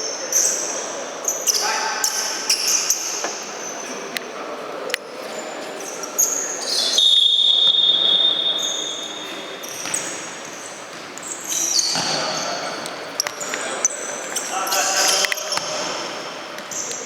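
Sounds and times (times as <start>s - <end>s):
shoes squeaking on court: 8.5s - 17.0s.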